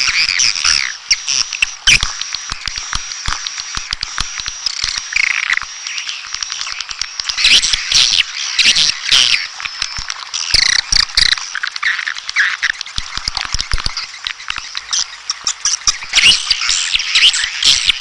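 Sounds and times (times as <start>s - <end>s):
swiftlets twittering chirps: 4.6s - 18.0s.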